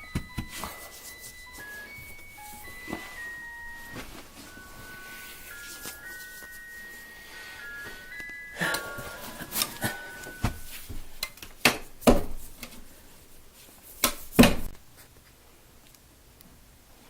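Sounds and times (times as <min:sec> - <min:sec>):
chiming mallet percussion melody: 0:00.0 - 0:11.2.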